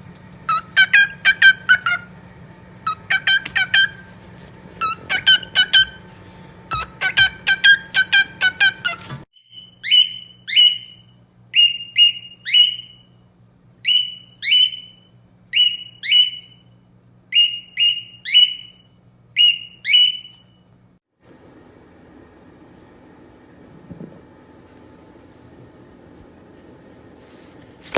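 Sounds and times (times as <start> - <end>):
parrot chirping calls: 0.5 - 2.1, 2.8 - 4.1, 4.8 - 6.0, 6.7 - 13.1, 13.8 - 16.6, 17.3 - 20.5
parrot whistled calls: 0.5 - 2.1, 2.9 - 4.1, 4.8 - 6.0, 6.7 - 13.1, 13.8 - 16.7, 17.3 - 20.6.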